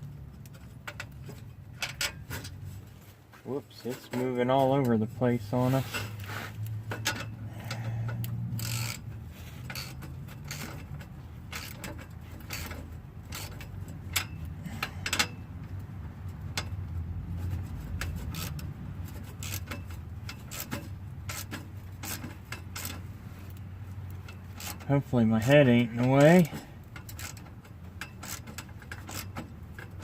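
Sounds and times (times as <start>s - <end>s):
wrench clicking on metal nuts: 6.9s - 15.8s, 17.9s - 23.1s, 24.1s - 25.0s, 26.0s - 30.0s.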